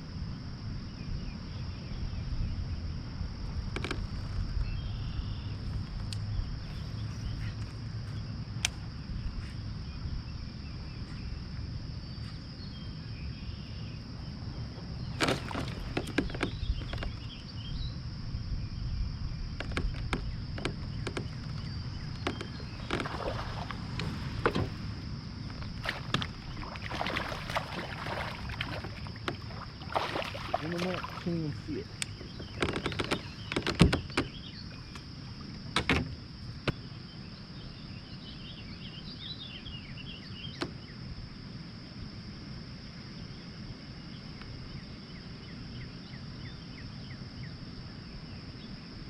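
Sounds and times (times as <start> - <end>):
steady low rumble: 0.0 - 38.2
knocks and clicks on kayak: 3.6 - 4.2, 14.7 - 17.5, 19.5 - 36.9, 40.5 - 40.9.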